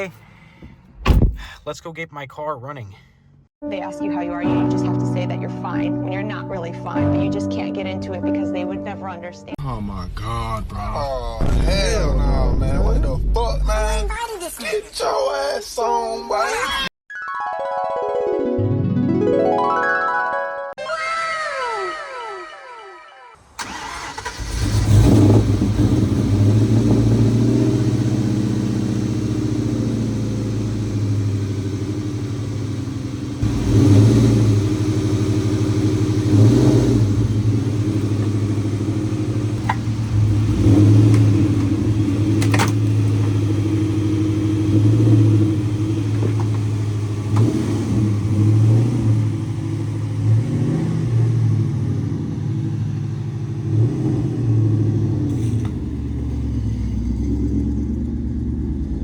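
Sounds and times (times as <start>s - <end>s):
car engine starting: 23.4s - 59.0s
car engine idling: 23.6s - 59.0s
engine revving: 23.6s - 59.0s.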